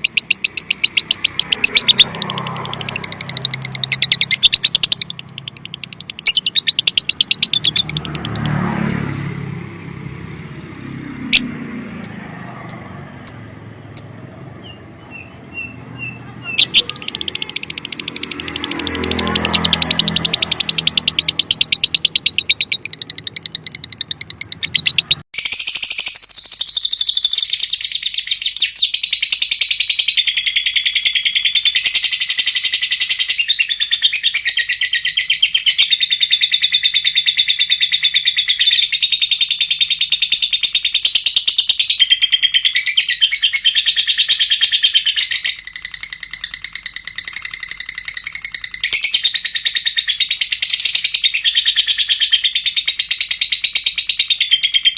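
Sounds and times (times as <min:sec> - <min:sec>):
low rapidly pulsing bird call: 0:00.0 - 0:08.2
lovebird chattering song: 0:00.0 - 0:09.0, 0:11.2 - 0:54.9.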